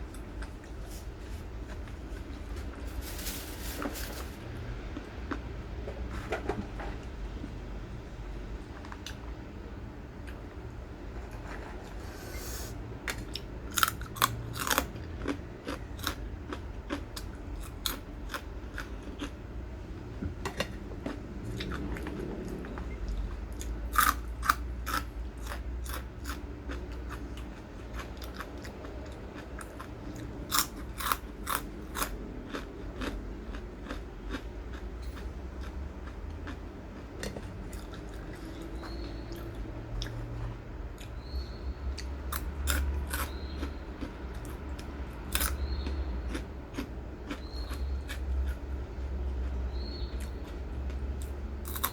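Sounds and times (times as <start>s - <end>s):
crisp food crunching: 0.1s - 5.4s, 13.1s - 19.3s, 23.2s - 40.2s, 42.3s - 48.6s, 49.4s - 51.9s.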